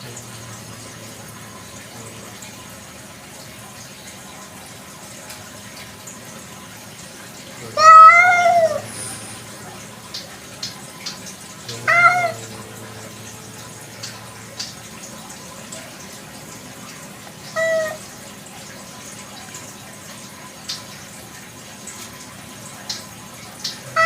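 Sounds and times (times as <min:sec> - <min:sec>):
cat meowing: 0:07.7 - 0:08.9, 0:11.7 - 0:12.6, 0:17.5 - 0:18.0.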